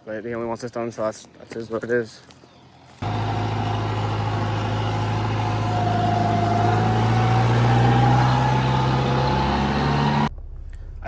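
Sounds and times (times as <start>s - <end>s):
tractor engine running: 3.0s - 10.3s.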